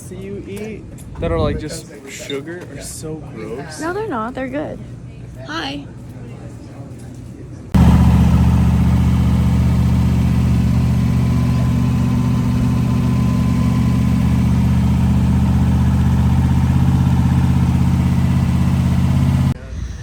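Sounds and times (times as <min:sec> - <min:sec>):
car engine idling: 0:07.8 - 0:19.6.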